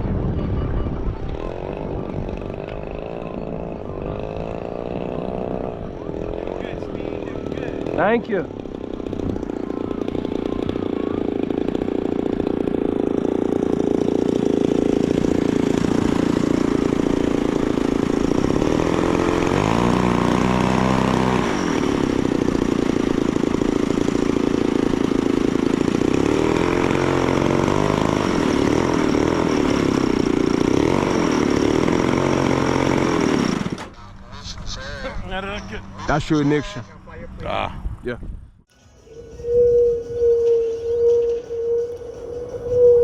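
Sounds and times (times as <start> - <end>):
model airplane engine running: 1.3 - 34.3.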